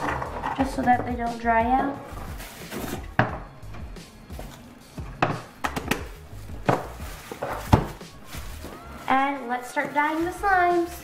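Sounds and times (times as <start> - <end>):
background music: 0.0 - 11.0
containers knocking and clicking: 5.2 - 6.1.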